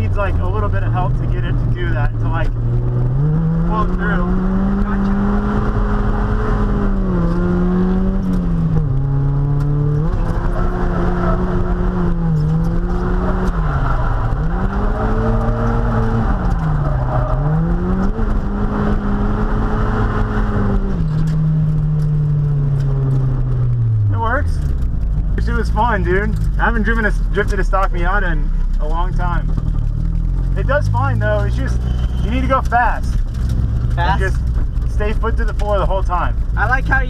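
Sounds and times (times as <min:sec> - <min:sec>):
car engine revving high: 0:00.0 - 0:24.8.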